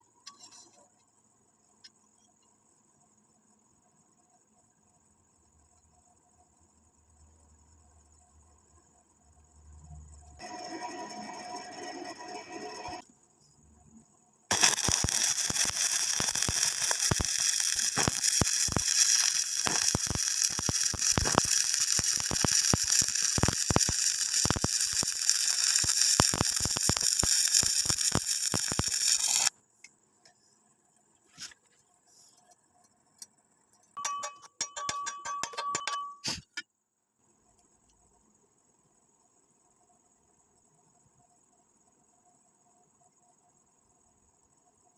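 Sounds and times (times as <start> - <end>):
welding arc crackling: 14.5 - 29.5.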